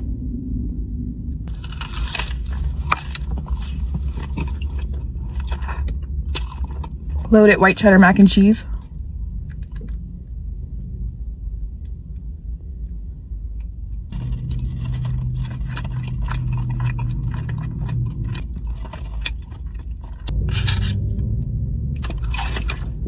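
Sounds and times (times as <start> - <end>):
low steady rumble: 0.0 - 23.0
person chewing food: 1.5 - 7.3, 14.1 - 23.0.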